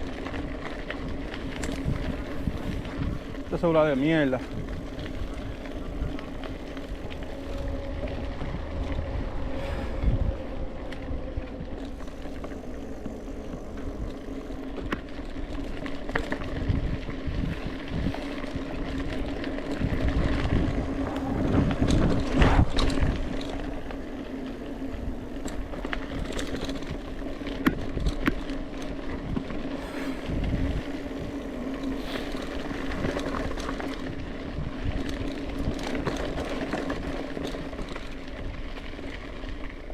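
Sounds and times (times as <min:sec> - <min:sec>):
wind on microphone: 0:00.0 - 0:37.0
bike tyre noise: 0:00.0 - 0:39.9
steady hum: 0:04.5 - 0:16.2.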